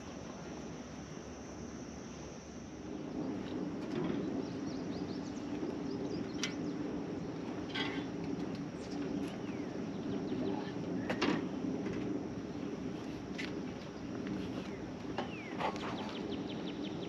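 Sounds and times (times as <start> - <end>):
small birds chirping: 4.2 - 7.5, 8.8 - 11.2, 13.8 - 17.0.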